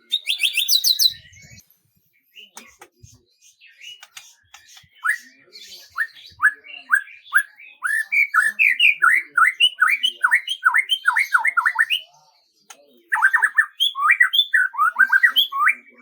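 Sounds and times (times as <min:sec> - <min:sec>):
bird chirping rapidly: 0:00.0 - 0:01.6, 0:13.1 - 0:15.9.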